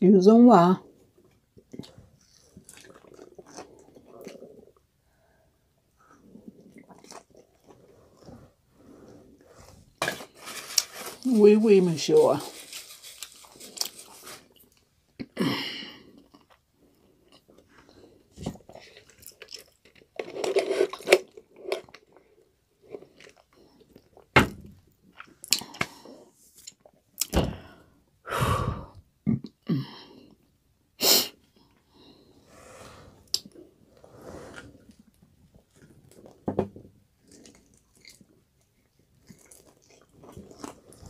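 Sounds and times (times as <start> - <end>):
chewing crispy fried chicken: 1.6 - 5.3, 6.0 - 8.3, 16.0 - 24.3, 37.2 - 41.0
sharp knocks and thunks: 24.4 - 24.8.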